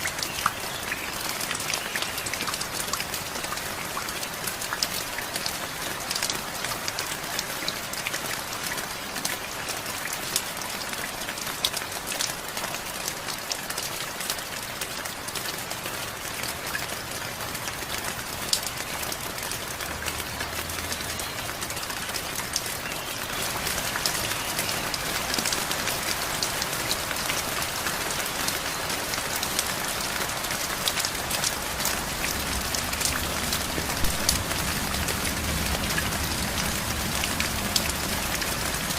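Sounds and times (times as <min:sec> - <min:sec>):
steady rain falling: 0:00.0 - 0:38.9
close raindrop hits: 0:31.0 - 0:38.9.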